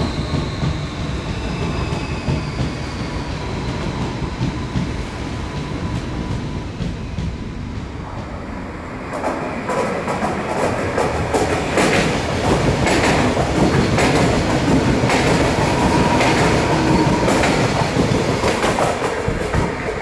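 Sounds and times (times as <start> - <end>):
train running noise: 0.0 - 20.0
train wheels clicking over rail joints: 9.2 - 20.0.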